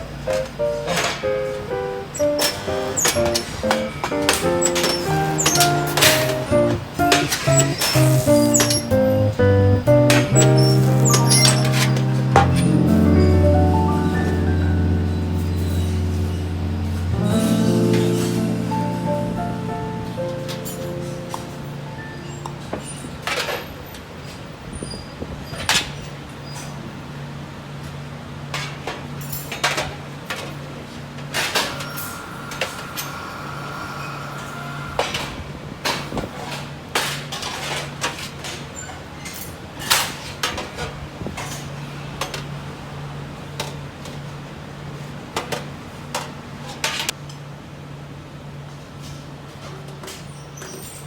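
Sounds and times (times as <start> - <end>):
steady low hum: 11.9 - 22.8.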